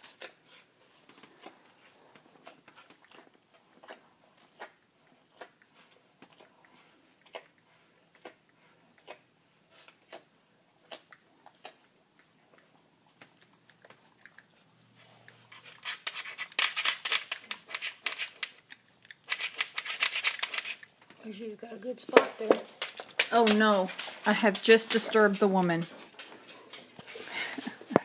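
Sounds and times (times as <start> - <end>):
dog licking: 0.1 - 15.8.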